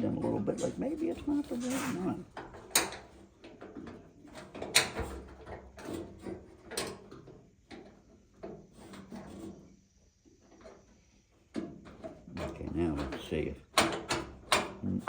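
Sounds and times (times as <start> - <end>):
metal latch clicking and clattering: 2.4 - 3.1, 12.4 - 14.8.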